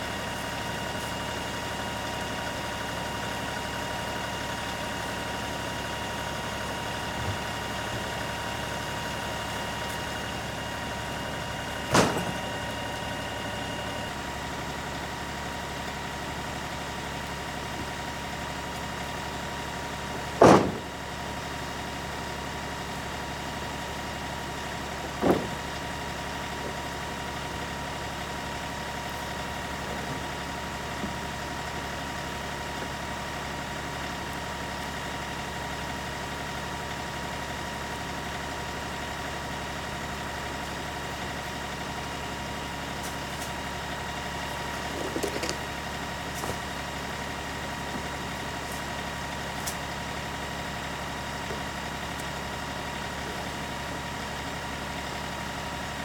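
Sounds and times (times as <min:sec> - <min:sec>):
tractor diesel engine running: 0:00.0 - 0:56.0
sharp metallic clunk: 0:11.9 - 0:12.6, 0:20.4 - 0:20.9.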